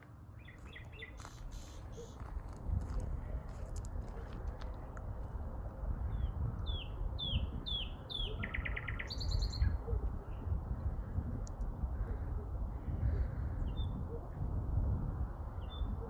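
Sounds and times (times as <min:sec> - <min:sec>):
songbird singing: 0:00.4 - 0:02.2, 0:06.1 - 0:10.4.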